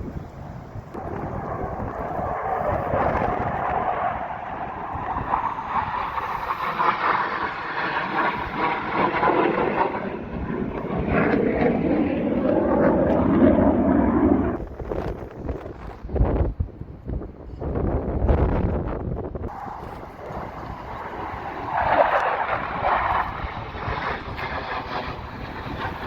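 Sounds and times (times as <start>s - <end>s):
jets flying past roaring: 0.0s - 16.1s, 19.3s - 26.0s.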